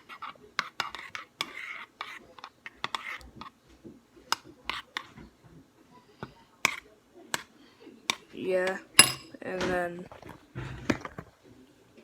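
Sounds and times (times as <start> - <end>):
spoon tapping against bowl: 8.1 - 9.3.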